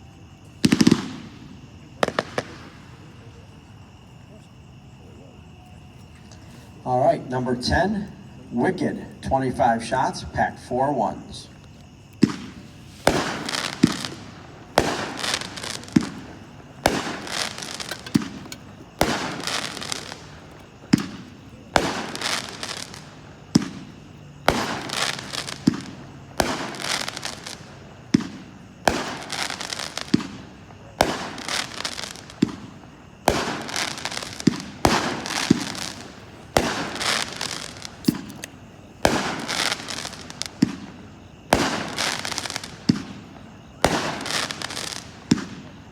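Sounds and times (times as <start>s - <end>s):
hissing crackling firework trails: 0.0s - 5.3s, 6.0s - 45.9s
firework shots banging: 0.6s - 3.3s, 12.1s - 45.8s.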